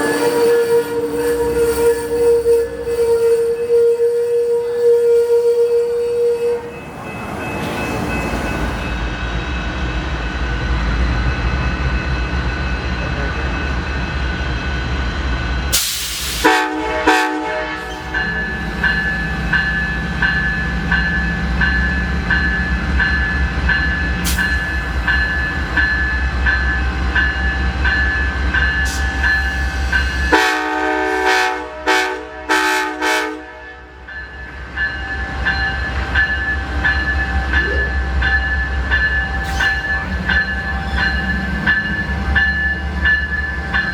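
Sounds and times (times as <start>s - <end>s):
train horn: 0.0s - 6.9s, 16.3s - 18.6s, 30.3s - 34.1s
locomotive engine rumbling: 0.0s - 43.9s
loud hiss: 15.7s - 16.5s.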